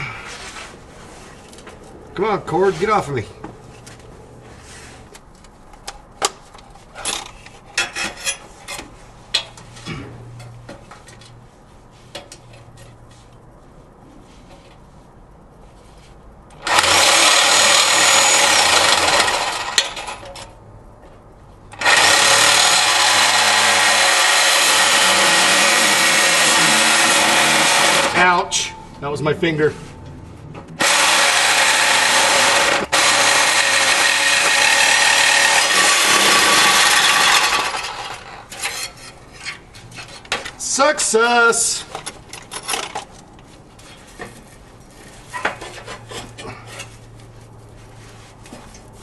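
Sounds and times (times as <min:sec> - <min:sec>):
reciprocating saw cutting pipe: 0:16.6 - 0:20.0, 0:21.8 - 0:28.3, 0:30.8 - 0:38.8.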